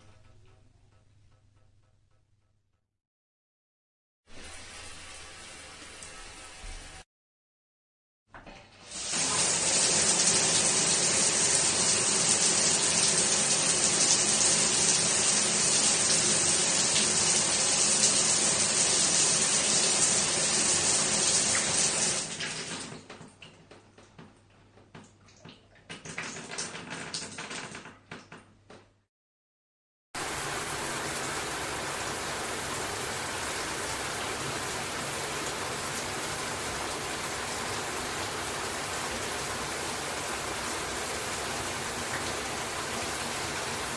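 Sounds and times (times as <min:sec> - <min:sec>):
shower water spraying: 0:04.3 - 0:07.0, 0:08.9 - 0:22.7, 0:30.2 - 0:43.9
water splashes and drips: 0:08.9 - 0:27.4, 0:30.2 - 0:43.9.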